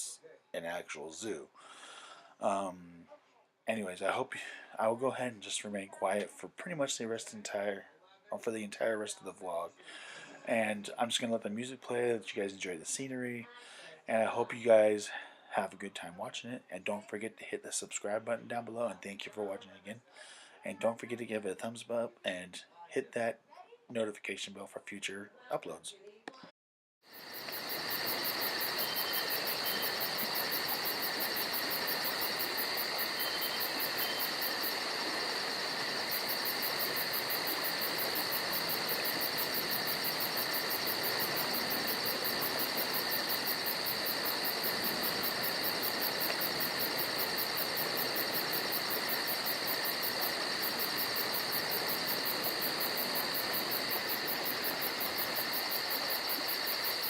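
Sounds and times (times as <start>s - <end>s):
insects trilling: 27.1s - 57.0s.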